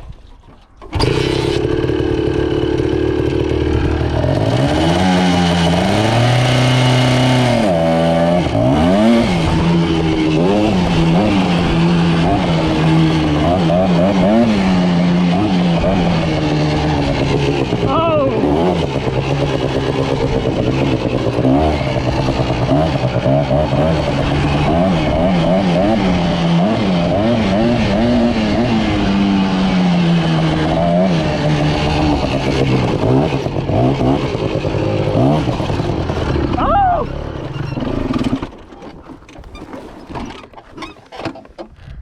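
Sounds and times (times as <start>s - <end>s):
small motorbike engine revving: 0.8s - 41.4s.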